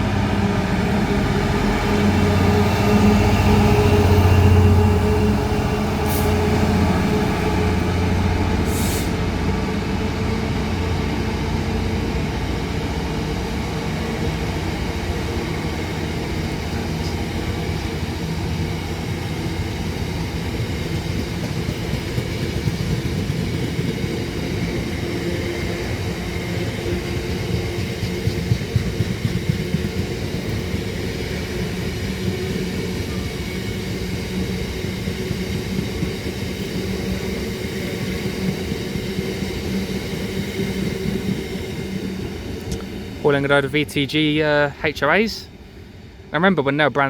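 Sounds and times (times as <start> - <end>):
diesel locomotive passing: 0.0 - 47.0
freight wagons rumbling and clattering: 26.1 - 33.4.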